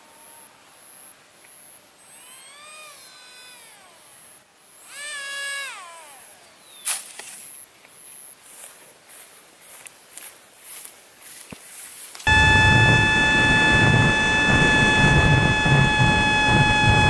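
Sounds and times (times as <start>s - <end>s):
faint high pulsing tone: 0.0s - 6.8s, 12.3s - 17.0s.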